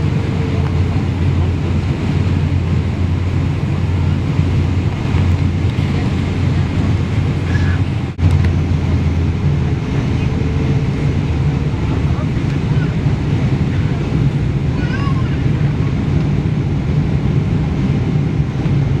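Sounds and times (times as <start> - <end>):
jet engines rumbling: 0.0 - 19.0
rushing air in cabin: 0.0 - 19.0.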